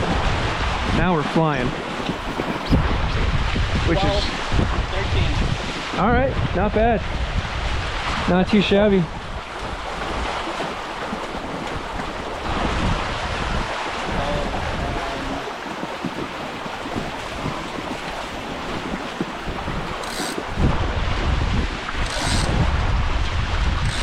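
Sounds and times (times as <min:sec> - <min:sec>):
water rushing along boat hulls: 0:00.0 - 0:24.0
wind buffeting microphone: 0:00.0 - 0:24.0.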